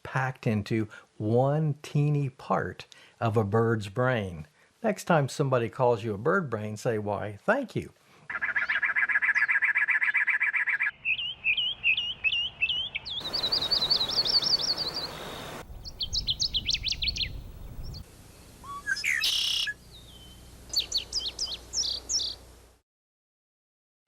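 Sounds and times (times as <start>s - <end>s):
birds singing and calling: 8.3s - 18.0s, 18.6s - 22.4s.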